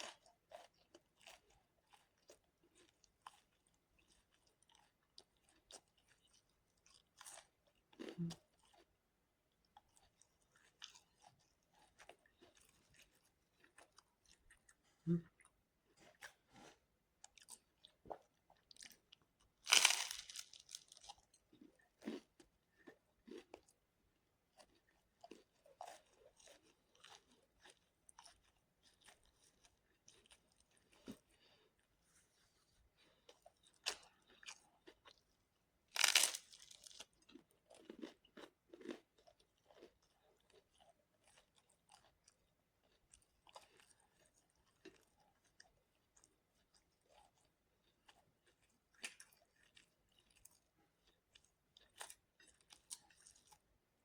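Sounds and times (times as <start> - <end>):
chewing with mouth clicks: 0.0 - 23.8, 24.5 - 53.7
crunching bites into crisp food: 19.6 - 21.3, 35.9 - 39.0.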